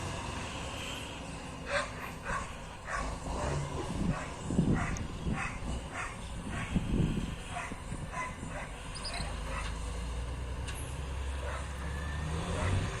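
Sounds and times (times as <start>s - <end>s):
low engine drone: 0.0s - 13.0s
dog barking: 1.7s - 6.8s, 7.5s - 9.7s, 11.4s - 11.7s, 12.5s - 12.9s.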